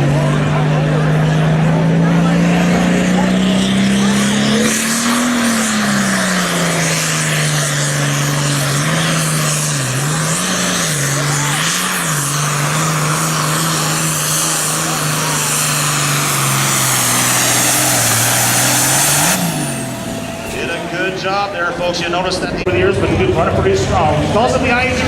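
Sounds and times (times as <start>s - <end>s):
tractor diesel engine under load: 0.0s - 25.0s
high whine: 13.8s - 23.5s.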